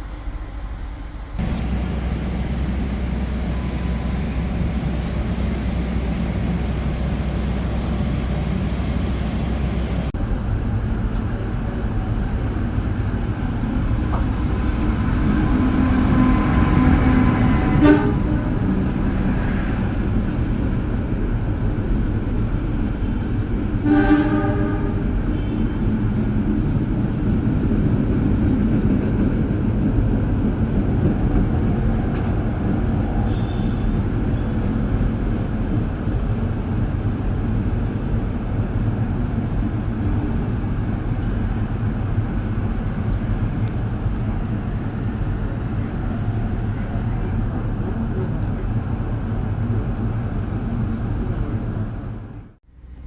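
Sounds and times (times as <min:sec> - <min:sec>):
train rumbling: 0:00.0 - 0:53.0
train horn toot: 0:14.7 - 0:19.7, 0:23.8 - 0:25.8, 0:33.2 - 0:34.6.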